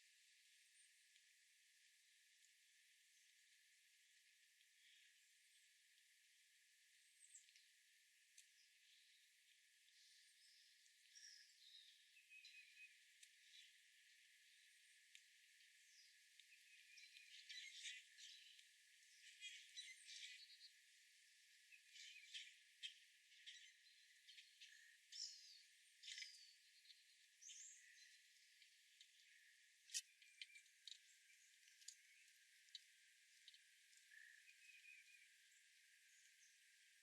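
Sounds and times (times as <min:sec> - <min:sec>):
faint bird chirps: 0:08.4 - 0:13.8, 0:15.8 - 0:20.9, 0:21.5 - 0:37.0.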